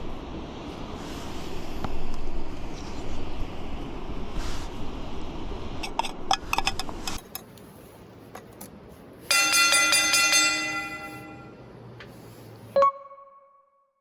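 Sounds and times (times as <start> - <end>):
outdoor noise: 0.0 - 12.8
short ding: 9.3 - 11.6
metallic bell ring: 9.3 - 11.7.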